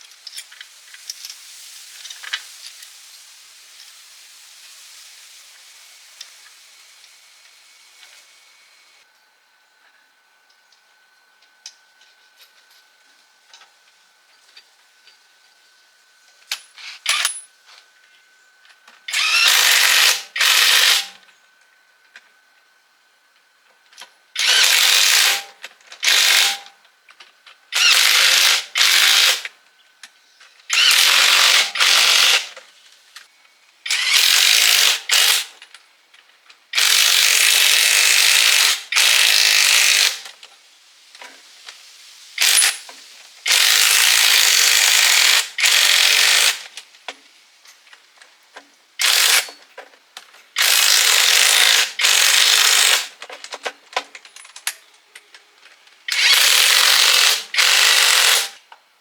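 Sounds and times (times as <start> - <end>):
workshop tool hissing bursts: 19.1 - 21.2, 24.4 - 26.7, 33.9 - 35.5, 36.8 - 40.3, 42.4 - 46.6, 50.6 - 53.2, 56.1 - 58.6.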